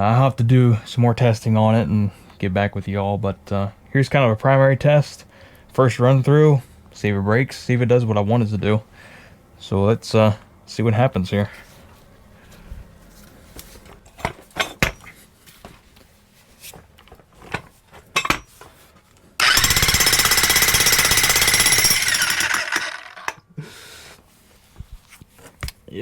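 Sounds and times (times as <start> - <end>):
electric jackhammer hammering: 19.4 - 23.4.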